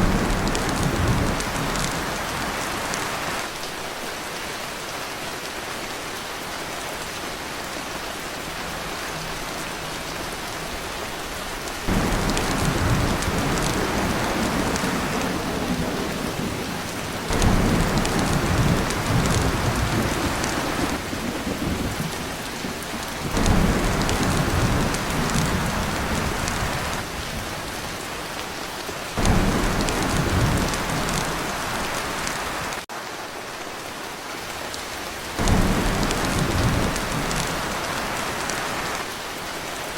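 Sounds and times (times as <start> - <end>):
thunder rumbling: 0.0 - 3.4, 11.9 - 27.6, 29.2 - 32.8, 35.4 - 39.0
heavy rain on a tin roof: 0.0 - 39.9.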